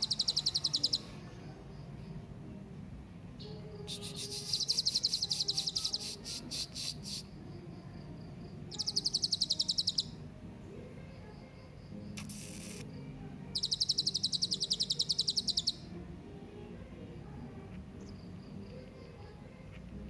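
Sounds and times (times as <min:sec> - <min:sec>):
parrot chirping: 0:00.0 - 0:01.2, 0:03.9 - 0:07.2, 0:08.7 - 0:10.2, 0:13.6 - 0:15.9.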